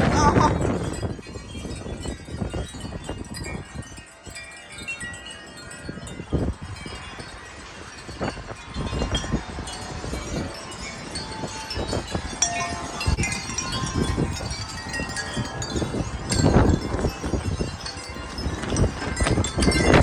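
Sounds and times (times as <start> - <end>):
metal wind chimes ringing: 0.0 - 20.0
wind buffeting microphone: 0.0 - 20.0.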